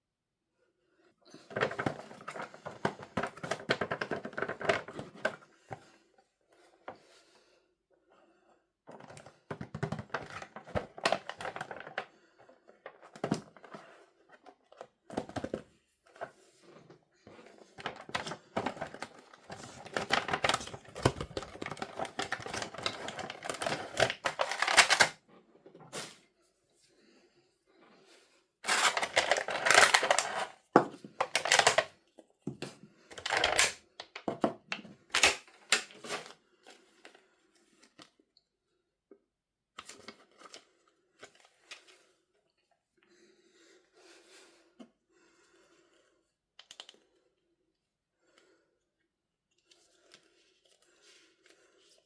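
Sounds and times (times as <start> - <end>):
packaging crinkling: 17.8 - 25.2, 28.6 - 30.6, 31.2 - 31.9, 33.2 - 33.8, 35.1 - 36.1.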